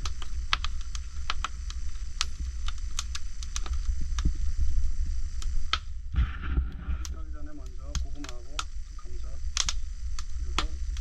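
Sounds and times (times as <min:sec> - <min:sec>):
fire crackling and popping: 0:00.0 - 0:11.0
wind rumble on microphone: 0:00.0 - 0:11.0.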